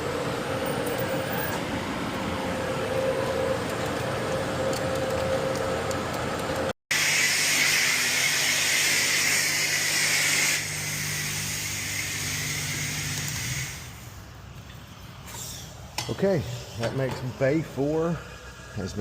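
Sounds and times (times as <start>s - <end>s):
spray wand blasting water: 6.9s - 14.0s.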